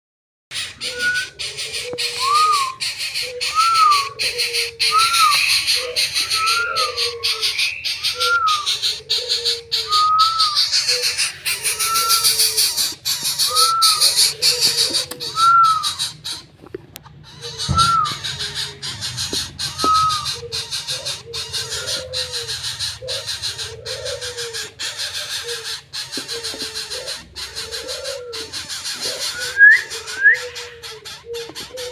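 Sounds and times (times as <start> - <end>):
bird chick whistled call: 0.6 - 16.2, 17.5 - 21.1, 29.0 - 30.7.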